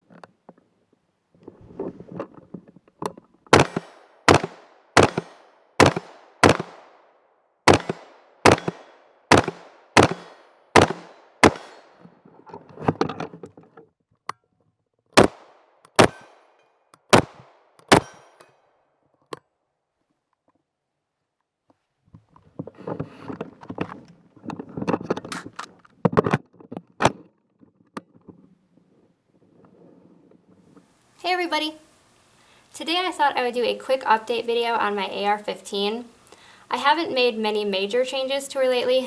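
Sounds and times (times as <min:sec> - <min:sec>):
rifle shots echoing: 0:03.5 - 0:12.0, 0:15.2 - 0:18.4.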